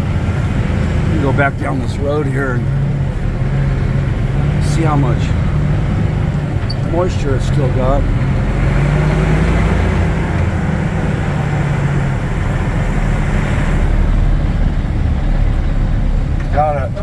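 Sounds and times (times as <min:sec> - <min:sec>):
diesel truck engine drone: 0:00.0 - 0:17.0
road noise: 0:00.0 - 0:17.0.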